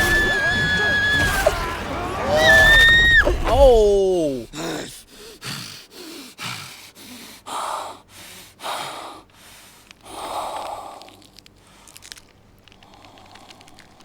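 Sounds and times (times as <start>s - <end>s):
person gasping breaths: 3.6s - 12.2s.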